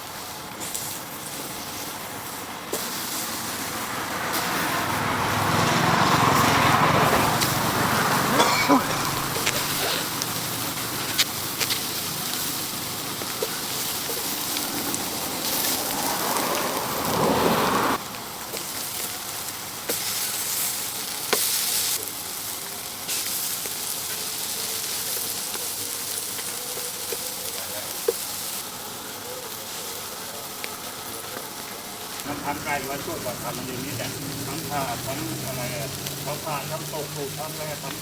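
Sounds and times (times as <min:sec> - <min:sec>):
chicken sizzling on charcoal grill: 0:00.0 - 0:38.0.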